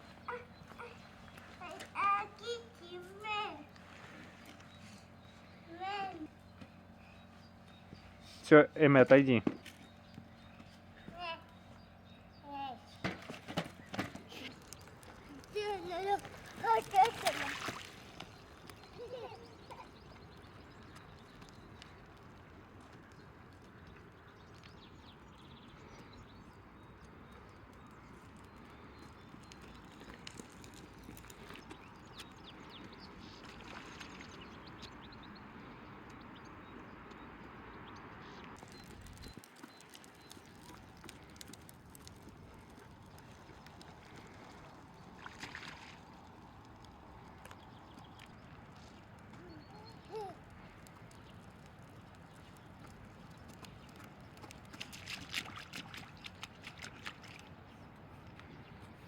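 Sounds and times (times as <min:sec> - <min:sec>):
faint outdoor background: 0:00.0 - 0:59.0
light clicks and crunches: 0:13.4 - 0:24.8, 0:27.3 - 0:32.4, 0:38.4 - 0:57.4.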